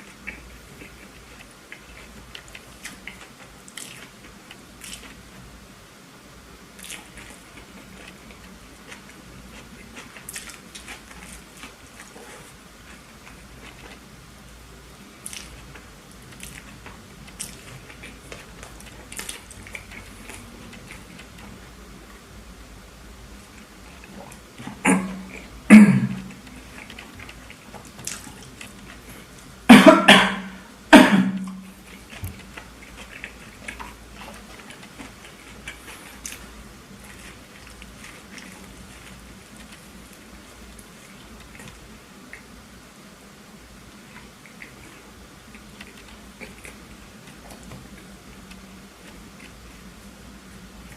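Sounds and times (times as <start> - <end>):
chewing with wet mouth clicks: 0.0 - 5.5, 6.8 - 14.1, 15.1 - 22.2, 23.4 - 29.6, 31.4 - 42.6, 43.9 - 50.1
person coughing: 24.8 - 26.3, 29.7 - 31.6.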